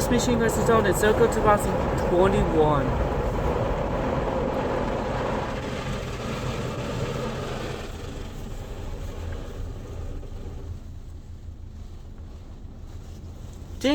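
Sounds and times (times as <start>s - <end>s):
car wash water and machinery: 0.0s - 13.9s.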